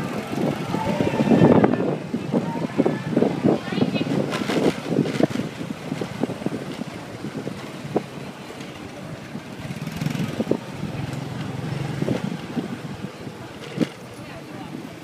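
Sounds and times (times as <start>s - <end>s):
wind buffeting microphone: 0.0s - 15.0s
motorcycle engine running: 9.5s - 12.9s.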